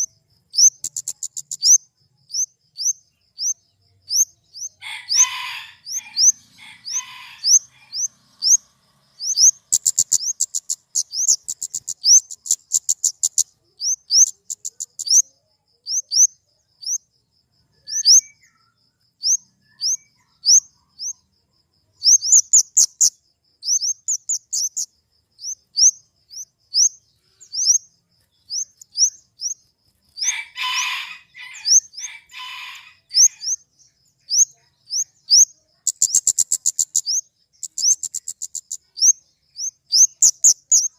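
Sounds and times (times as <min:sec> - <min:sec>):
bird rasping calls: 0:04.8 - 0:15.2, 0:30.2 - 0:33.6.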